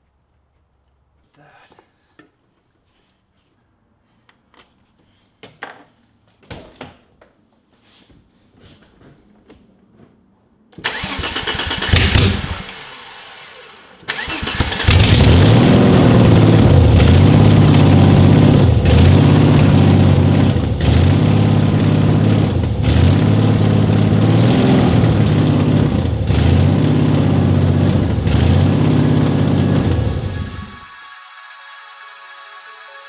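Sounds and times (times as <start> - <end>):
car engine starting: 10.8 - 30.9
engine hunting idle: 10.9 - 30.9.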